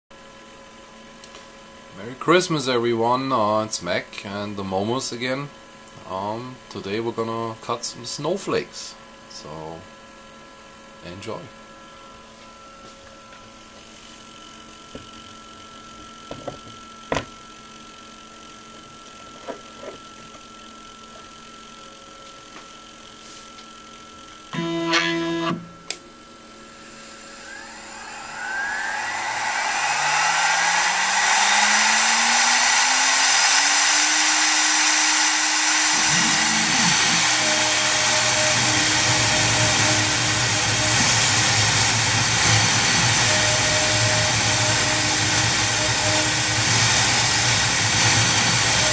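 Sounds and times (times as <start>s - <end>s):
router spindle whine: 24.6s - 25.7s, 26.6s - 48.9s
short pitched burst: 26.9s - 48.9s
loud steady rushing noise: 27.3s - 48.9s.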